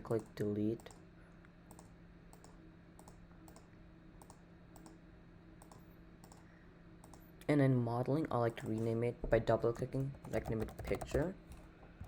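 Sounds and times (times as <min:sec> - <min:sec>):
low steady hum: 0:00.0 - 0:12.0
computer mouse clicks: 0:01.7 - 0:05.0, 0:05.6 - 0:07.3.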